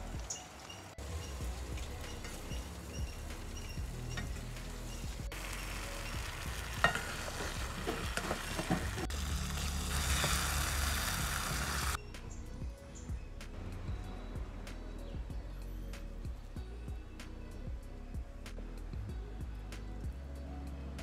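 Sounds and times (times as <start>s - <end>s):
curry sizzling in a pot: 0.2s - 12.0s.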